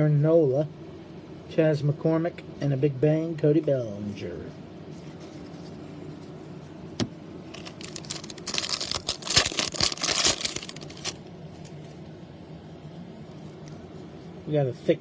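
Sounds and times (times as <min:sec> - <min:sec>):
foil wrapper crinkling and tearing: 0:07.5 - 0:11.2.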